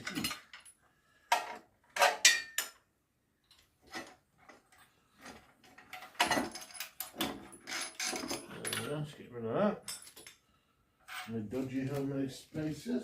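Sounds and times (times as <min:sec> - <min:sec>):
metal parts and tools clinking: 0:00.0 - 0:09.1, 0:09.8 - 0:10.4.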